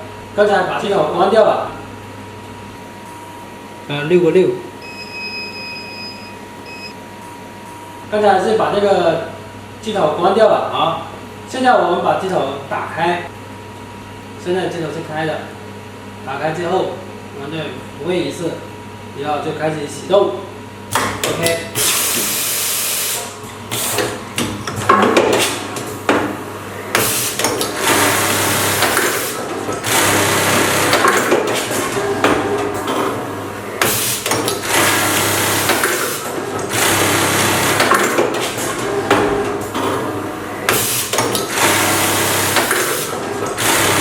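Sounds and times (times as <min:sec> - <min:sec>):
machine low hum: 0:00.0 - 0:44.0
sewing machine stitching: 0:27.0 - 0:32.2, 0:33.9 - 0:39.0, 0:40.7 - 0:44.0.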